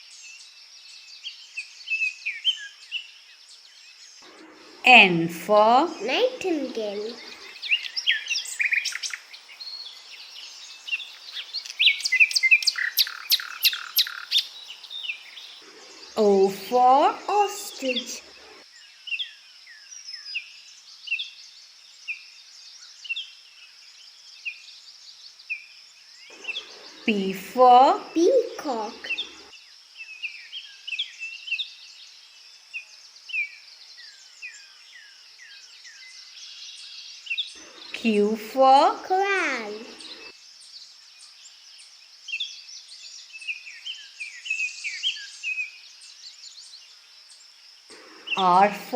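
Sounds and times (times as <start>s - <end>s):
nightingale singing: 0.0s - 21.4s, 25.5s - 48.9s
songbirds chirping: 0.0s - 48.9s
high hiss of ambience: 4.2s - 18.6s, 26.3s - 29.5s, 37.6s - 40.3s, 47.3s - 48.9s.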